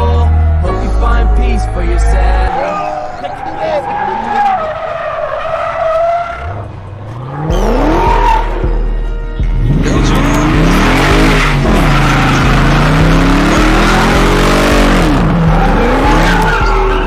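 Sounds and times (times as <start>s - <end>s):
tyres squealing and skidding: 0.0s - 8.9s, 9.6s - 17.0s
car engine revving hard: 7.2s - 8.6s, 9.6s - 16.8s.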